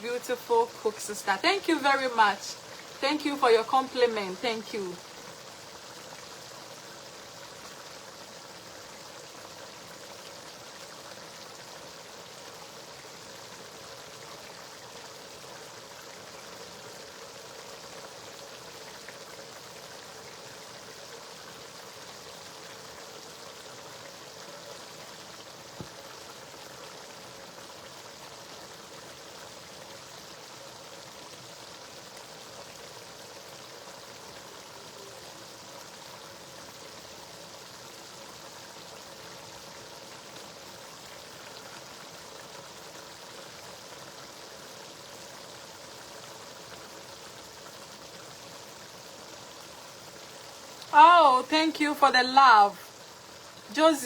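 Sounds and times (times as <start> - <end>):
stew sizzling on a stove: 0.0 - 54.0.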